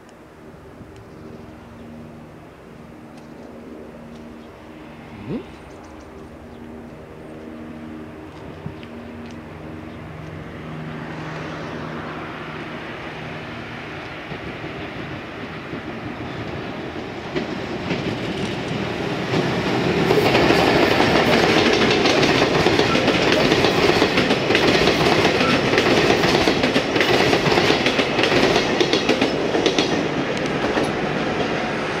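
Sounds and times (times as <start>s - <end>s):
train wheels clattering over rail joints: 14.2s - 31.7s.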